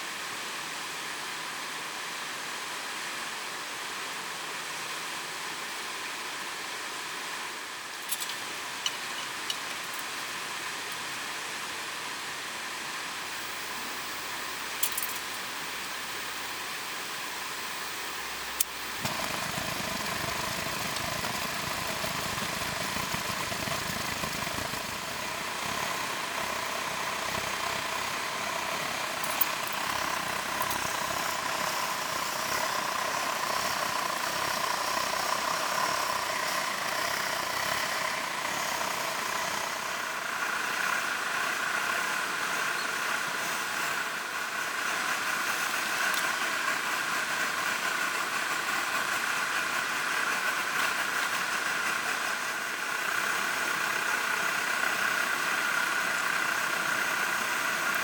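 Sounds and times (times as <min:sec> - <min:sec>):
steady hiss: 0:00.0 - 0:58.0
car engine idling: 0:18.7 - 0:58.0.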